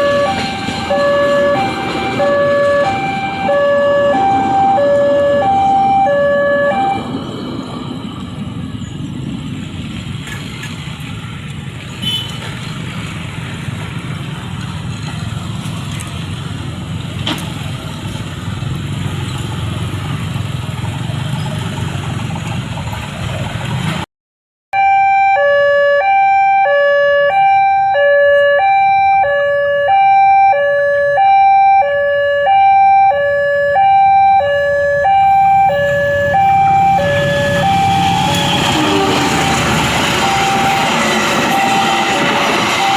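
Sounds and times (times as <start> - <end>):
level-crossing warning alarm: 0.0 - 7.9, 24.8 - 42.9
rising noise: 31.8 - 42.9.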